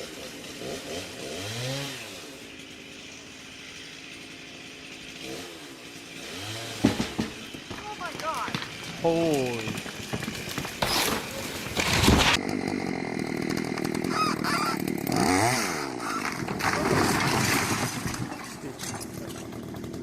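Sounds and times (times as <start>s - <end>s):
chainsaw engine running: 0.0s - 20.0s
loud crashing: 6.8s - 12.4s.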